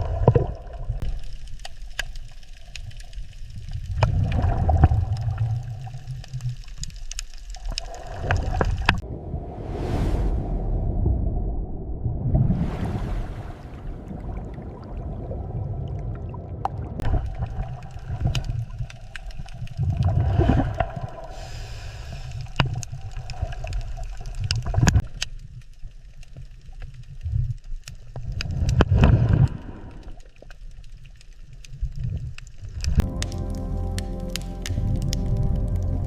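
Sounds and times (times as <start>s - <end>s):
water bubbling: 0.0s - 1.2s, 2.6s - 25.0s
underwater surging water rumble: 0.0s - 1.5s, 2.8s - 25.1s
sharp underwater clicks: 0.0s - 9.0s, 16.6s - 21.6s, 27.6s - 36.0s.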